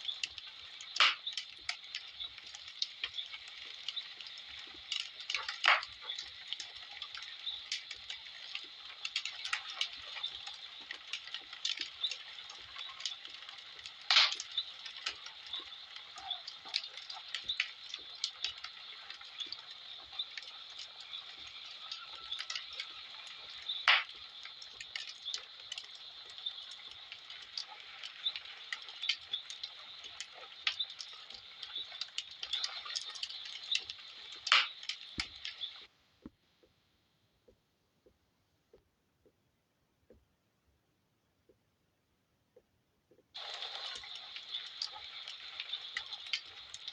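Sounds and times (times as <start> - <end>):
wood fire crackling: 0.0 - 36.8, 42.6 - 46.9
loud sharp fire pops: 0.9 - 2.0, 4.9 - 6.3, 14.0 - 15.2, 23.5 - 25.9, 34.4 - 35.5.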